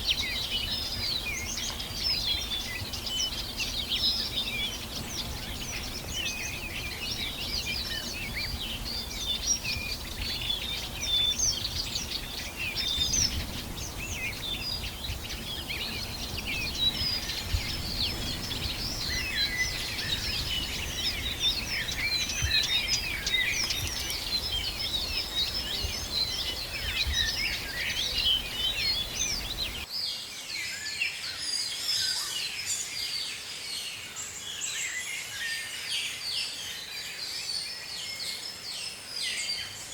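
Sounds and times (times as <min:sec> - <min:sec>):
birds chirping and whistling: 0:00.0 - 0:29.9.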